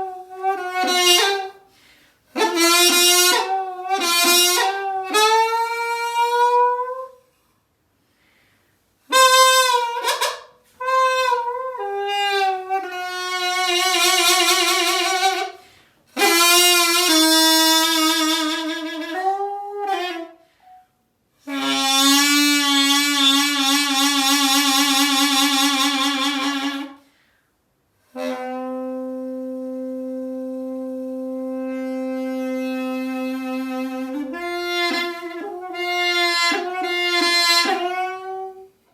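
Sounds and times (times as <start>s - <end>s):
double-reed pipe solo: 0.0s - 1.6s, 9.1s - 15.6s, 16.2s - 20.8s, 28.1s - 38.7s.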